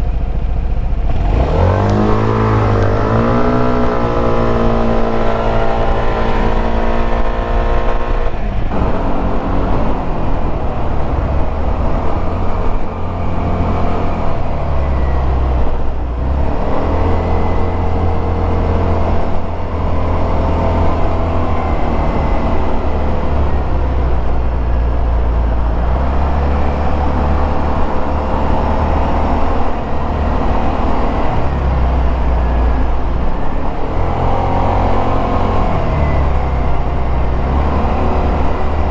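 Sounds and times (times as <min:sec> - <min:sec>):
scooter engine revving: 0:00.0 - 0:38.9.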